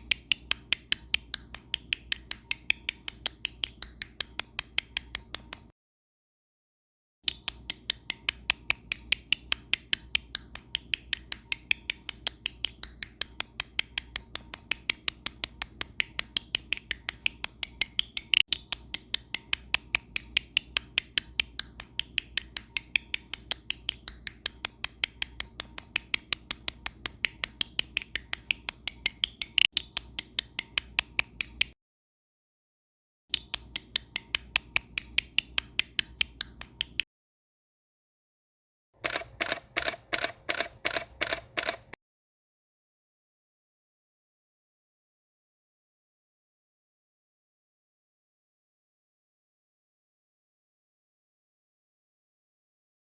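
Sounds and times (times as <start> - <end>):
fast sharp clicks: 39.0 - 42.0.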